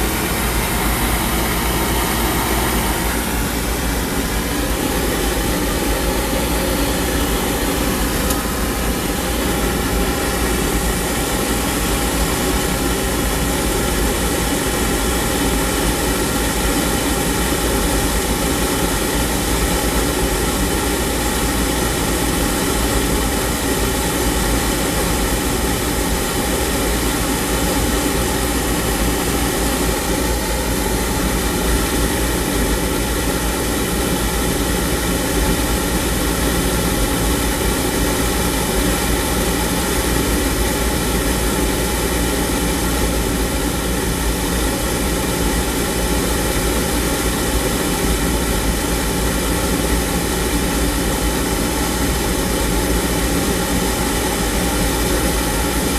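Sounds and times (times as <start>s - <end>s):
oil burner roaring: 0.0s - 55.9s.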